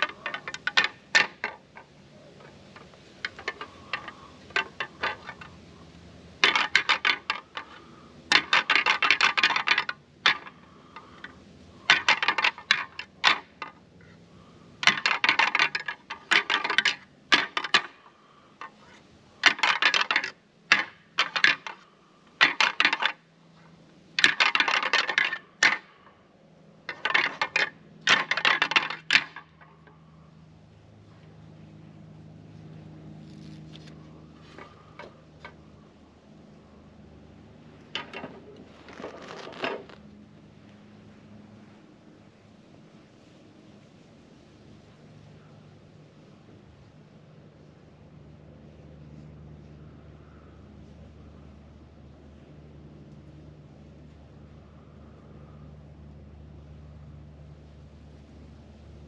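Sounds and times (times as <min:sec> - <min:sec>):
antlers clacking and grinding: 0:00.0 - 0:26.2, 0:26.8 - 0:30.0, 0:33.5 - 0:35.6, 0:37.8 - 0:40.0.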